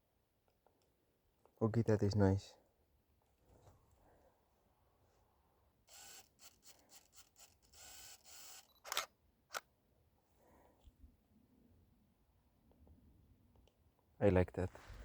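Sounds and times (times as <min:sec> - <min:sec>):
rustling and clicks from handling camera: 0:05.9 - 0:09.7
camera shutter firing: 0:07.8 - 0:09.6.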